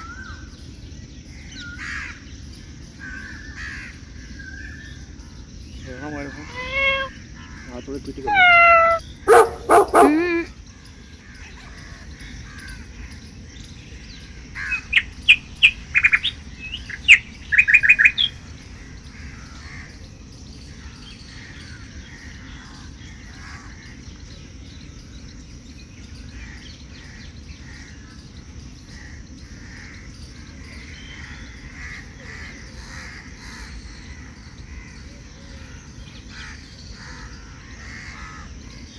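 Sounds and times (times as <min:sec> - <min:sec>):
loud sharp bird calls: 0:03.0 - 0:24.4
birds chirping: 0:04.9 - 0:38.9
low background rumble: 0:11.4 - 0:21.2.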